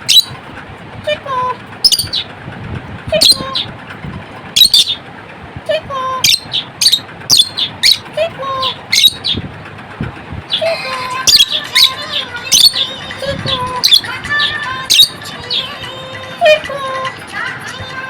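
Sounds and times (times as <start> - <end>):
lovebirds chirping: 0.0 - 0.4, 1.8 - 2.3, 4.6 - 5.0, 6.1 - 9.5, 10.5 - 18.0.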